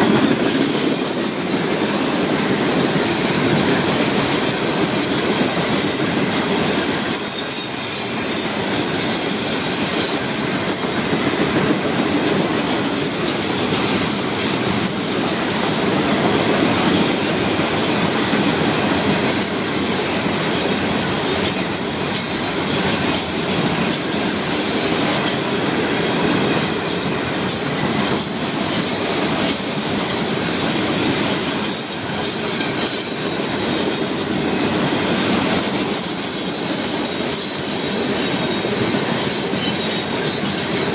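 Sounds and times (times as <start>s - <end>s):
high-pitched wheel squeal: 35.5s - 40.7s.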